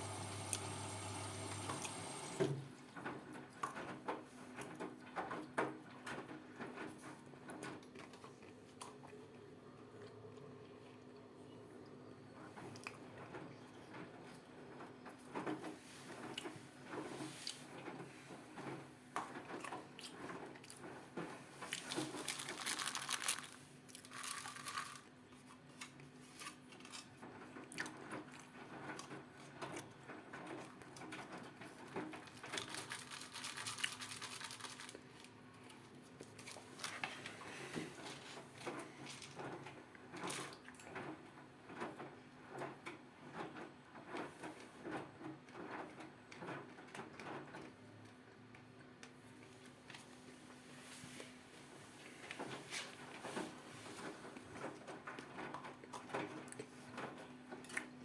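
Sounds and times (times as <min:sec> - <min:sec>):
washing machine motor humming: 0:00.0 - 0:02.7.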